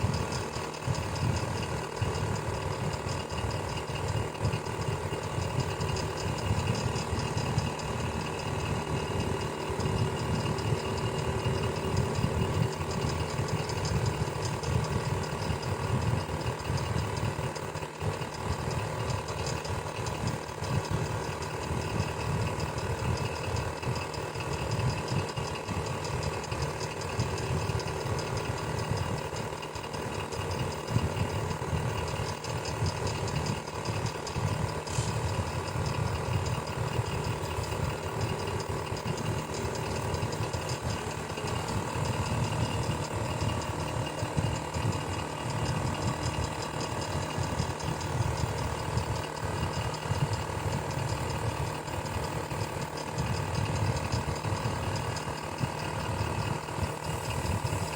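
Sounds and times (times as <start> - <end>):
electric fan motor hum: 0.0 - 57.9
fan mechanical rattle: 0.0 - 57.9.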